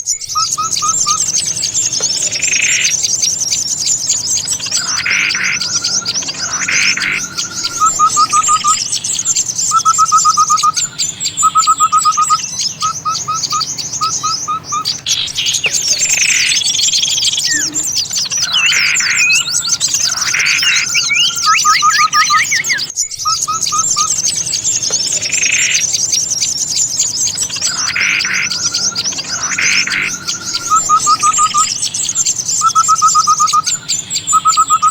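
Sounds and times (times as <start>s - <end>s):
falling bird calls: 0.0s - 34.9s
quick bird trills: 0.0s - 34.9s
songbirds twittering: 0.0s - 34.9s.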